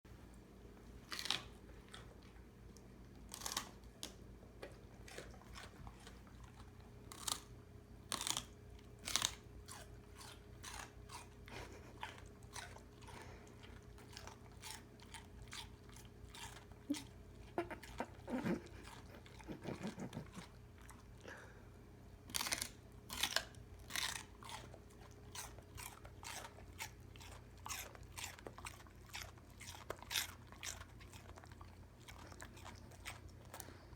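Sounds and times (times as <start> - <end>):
faint steady hum: 0.1 - 33.9
celery crunching: 1.0 - 13.3.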